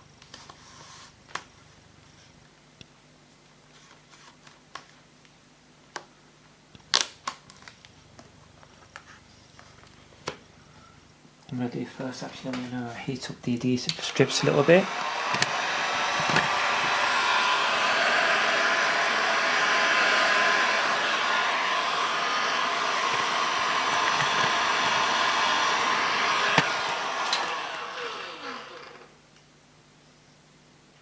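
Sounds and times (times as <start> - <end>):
fan winding down whine: 9.6 - 29.2
hot-air blower running: 13.6 - 29.2.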